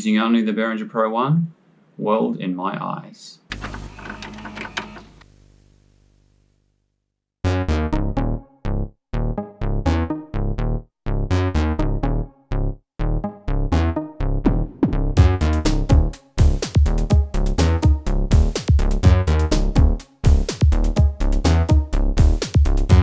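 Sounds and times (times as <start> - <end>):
punchy synth notes: 13.1 - 23.0
synthesized drum hits: 14.5 - 23.0.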